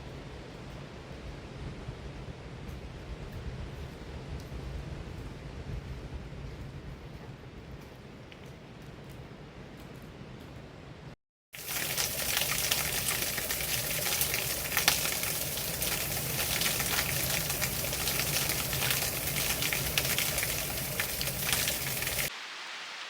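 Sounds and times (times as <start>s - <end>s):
running water splashing: 11.6s - 23.0s.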